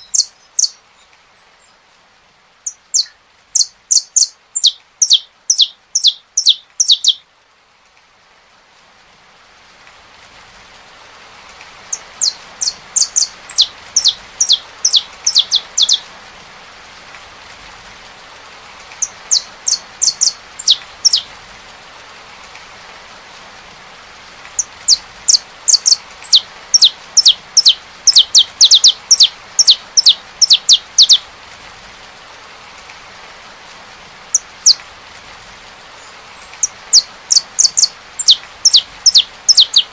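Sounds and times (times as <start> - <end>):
rain hiss: 0.0 - 39.9
finch singing high notes: 12.2 - 16.0, 37.0 - 39.9.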